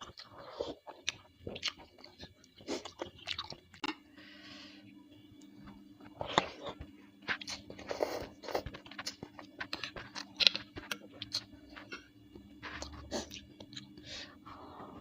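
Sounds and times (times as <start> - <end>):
chewing and crunching: 0.0 - 4.0, 6.0 - 14.0.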